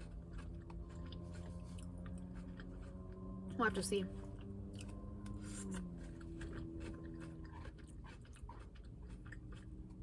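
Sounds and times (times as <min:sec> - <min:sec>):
chewing crunchy salad: 0:00.0 - 0:10.0.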